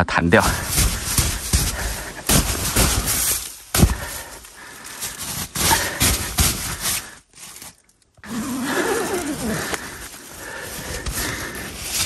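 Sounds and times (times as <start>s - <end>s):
brush scraping tent fabric: 0.4s - 3.7s, 5.0s - 10.4s
snow thumping off tent fabric: 0.4s - 4.4s, 5.0s - 7.0s.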